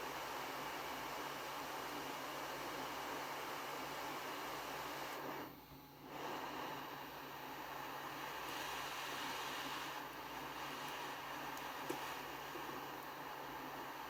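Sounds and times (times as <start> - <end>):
hot air blower hissing: 0.0 - 14.0.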